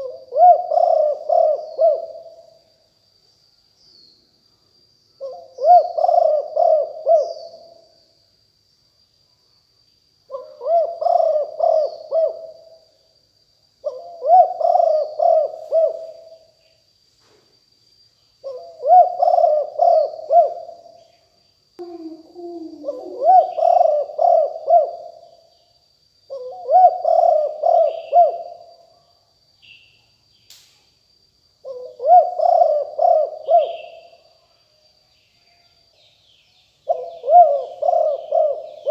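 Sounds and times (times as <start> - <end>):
dove cooing: 0.0 - 2.4, 5.2 - 7.8, 10.3 - 12.8, 13.8 - 16.4, 18.4 - 20.8, 21.8 - 25.2, 26.3 - 28.6, 31.6 - 34.2, 36.9 - 38.9
lower dove coo: 0.0 - 2.6, 5.2 - 7.8, 10.3 - 12.8, 13.8 - 16.5, 18.4 - 20.8, 21.8 - 25.4, 26.3 - 28.8, 31.6 - 34.2, 36.8 - 38.9
faint high whine: 0.0 - 38.9.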